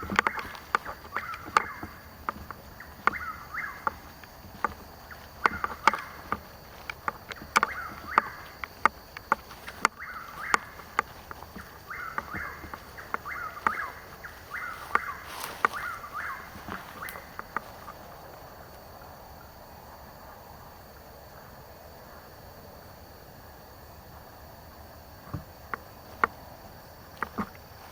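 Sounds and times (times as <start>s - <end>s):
sharp clicks and knocks: 0.0s - 18.0s, 27.1s - 27.9s.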